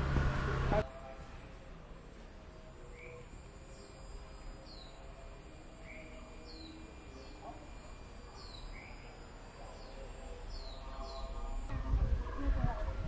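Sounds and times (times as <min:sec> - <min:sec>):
faint high-pitched buzz: 0:00.1 - 0:13.0.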